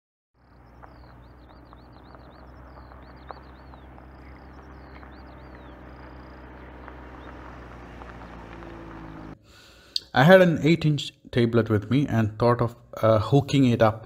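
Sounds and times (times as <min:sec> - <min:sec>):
steady low hum: 0:00.4 - 0:09.4
small birds chirping: 0:00.4 - 0:10.0.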